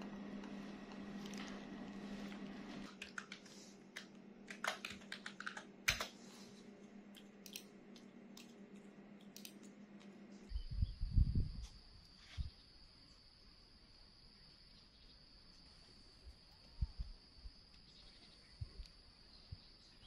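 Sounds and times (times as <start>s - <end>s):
low steady hum: 0.0s - 20.0s
keyboard typing: 2.9s - 6.2s
insects buzzing: 10.4s - 20.0s.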